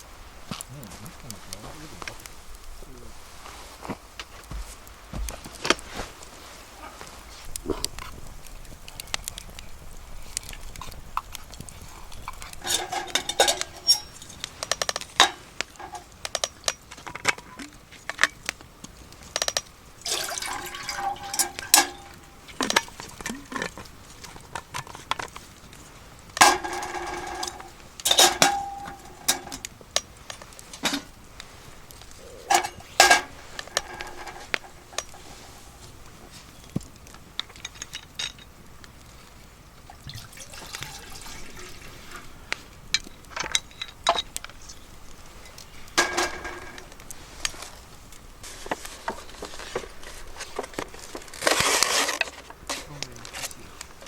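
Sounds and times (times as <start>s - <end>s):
metal cookware clinking: 12.3s - 16.5s, 20.1s - 23.2s, 26.4s - 29.7s, 32.4s - 35.5s, 45.4s - 46.9s.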